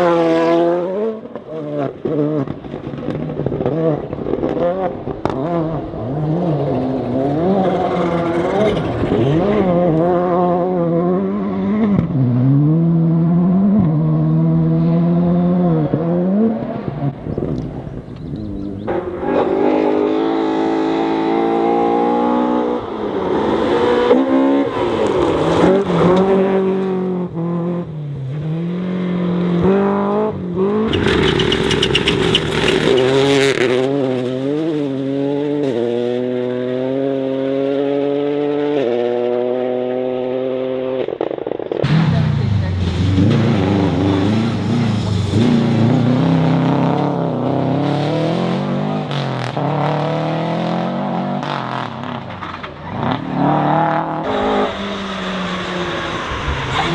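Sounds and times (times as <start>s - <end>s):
rally car engines revving: 0.0s - 56.9s
loud hissing rush: 54.3s - 56.9s.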